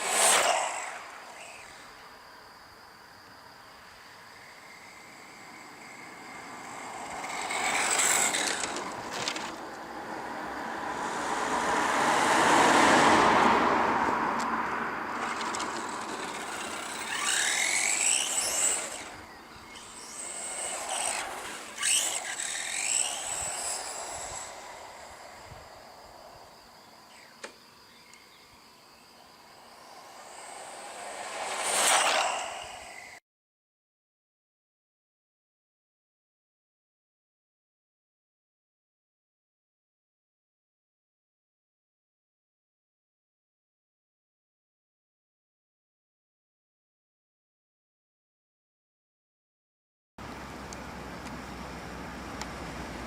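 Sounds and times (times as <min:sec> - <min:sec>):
tyre and drivetrain noise: 0:00.0 - 0:02.0, 0:04.4 - 0:28.4, 0:29.5 - 0:33.2, 0:50.2 - 0:53.0
rc car motors whining: 0:00.0 - 0:02.3, 0:03.8 - 0:12.6, 0:15.1 - 0:33.2.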